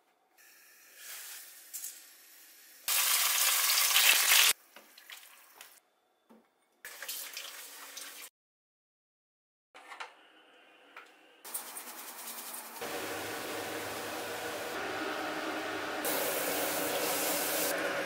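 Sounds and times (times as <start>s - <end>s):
tomato sizzling in oil: 0.9s - 5.3s
quiet kitchen noises: 4.0s - 8.3s, 9.8s - 12.8s.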